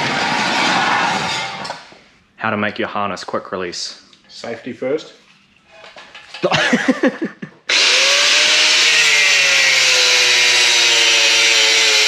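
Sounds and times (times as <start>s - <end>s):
electric power tool cutting: 7.7s - 12.0s.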